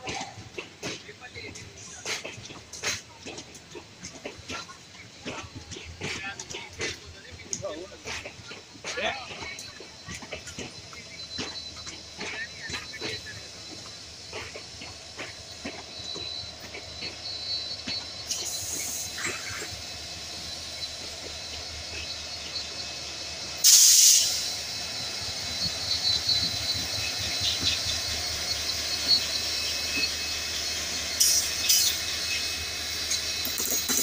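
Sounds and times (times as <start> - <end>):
train wheels rumbling on rails: 0.0 - 34.0
hissing air blast: 23.6 - 24.8.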